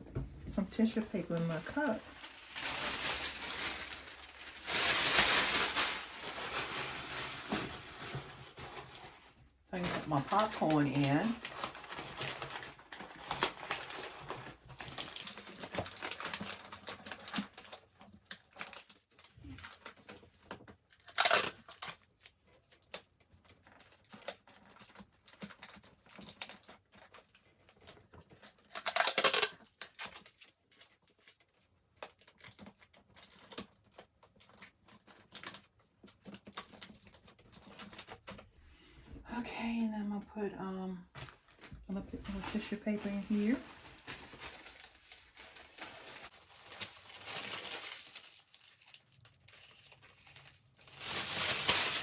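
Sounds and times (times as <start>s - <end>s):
tissue paper crinkling: 0.6s - 20.1s, 41.2s - 52.0s
loud paper crumples: 0.7s - 20.2s, 21.0s - 23.0s, 23.6s - 38.4s, 41.2s - 52.0s.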